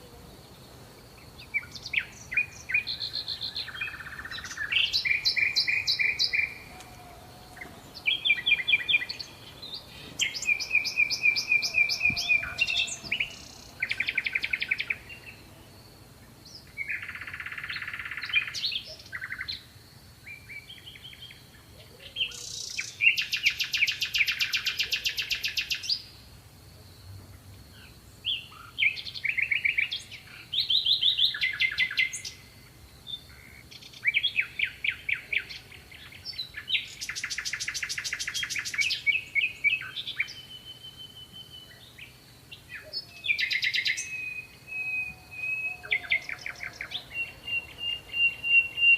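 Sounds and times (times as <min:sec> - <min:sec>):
songbirds singing: 0:00.0 - 0:26.4, 0:27.0 - 0:48.9.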